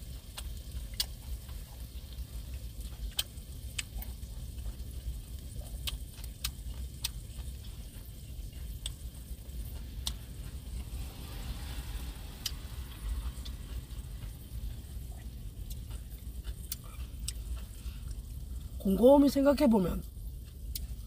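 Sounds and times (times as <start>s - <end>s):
low steady rumble: 0.0s - 21.0s
food sizzling in a pan: 9.9s - 15.5s.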